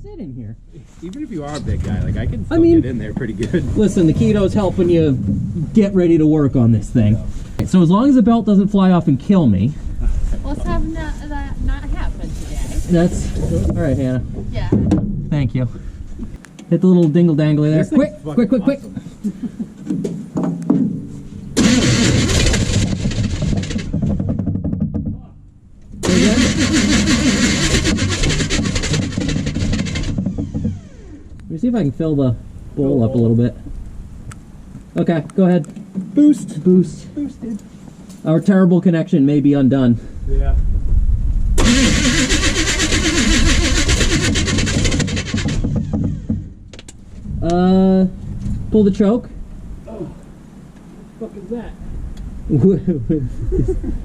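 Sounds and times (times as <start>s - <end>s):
starter motor cranking engine: 21.6s - 24.3s, 26.0s - 31.5s, 41.6s - 46.7s.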